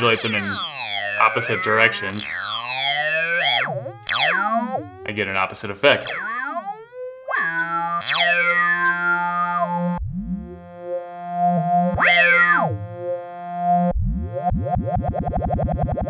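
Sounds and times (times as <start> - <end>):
low held synth tone: 0.0 - 5.2
synthesizer laser zaps: 0.0 - 14.4.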